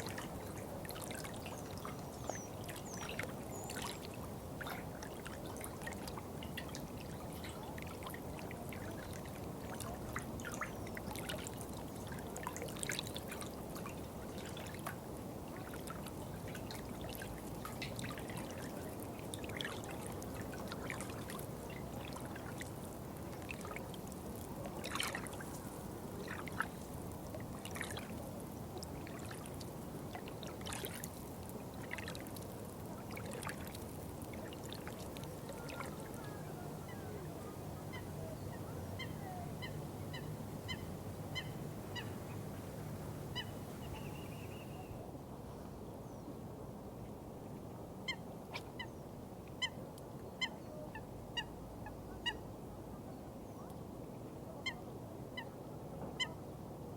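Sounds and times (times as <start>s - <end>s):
water trickling and splashing: 0.0s - 38.0s.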